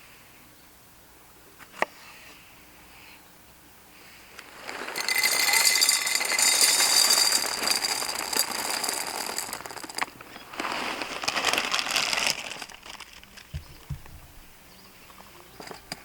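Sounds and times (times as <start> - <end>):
crinkling rustling of handling: 4.4 - 14.5
low thumps: 13.5 - 14.6.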